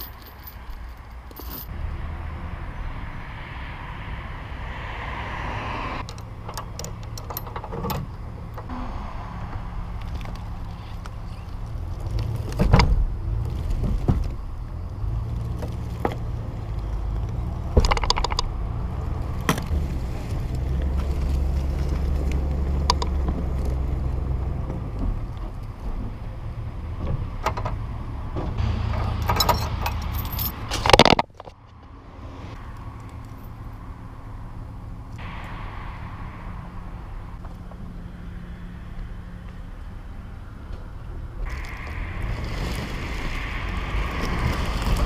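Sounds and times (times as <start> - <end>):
metallic rattling: 0.0 - 1.7
engine low rumble: 0.0 - 45.0.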